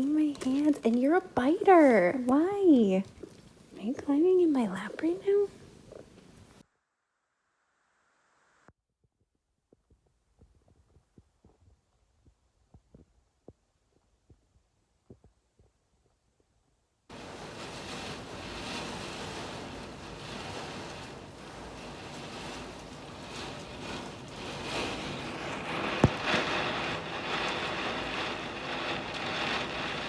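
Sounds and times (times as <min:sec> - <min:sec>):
storm rain and wind: 0:00.0 - 0:06.6, 0:17.1 - 0:30.0.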